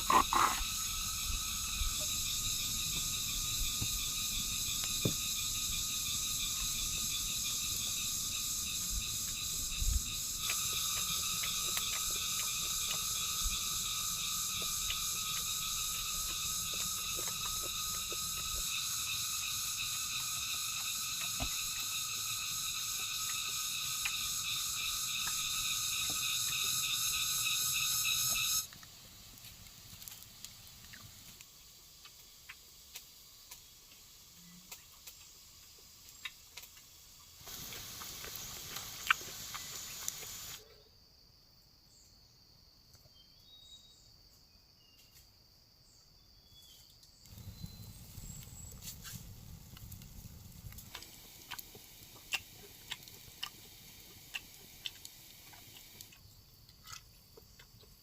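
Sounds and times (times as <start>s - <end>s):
high insect drone: 0.0s - 41.3s, 43.6s - 58.0s
faint bird chirps: 45.9s - 48.8s
rain dripping and pattering: 47.3s - 56.1s.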